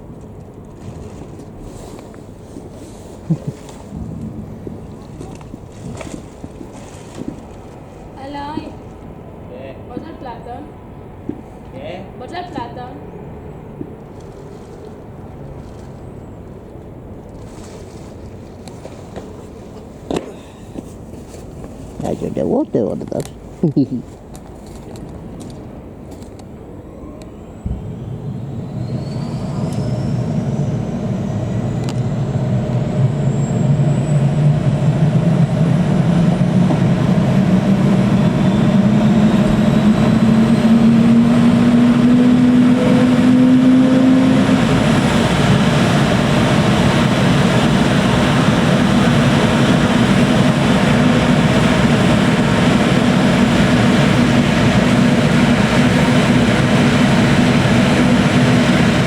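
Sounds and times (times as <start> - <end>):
high turbine whine: 0.0 - 17.3, 25.4 - 59.0
helicopter spinning up: 27.6 - 59.0.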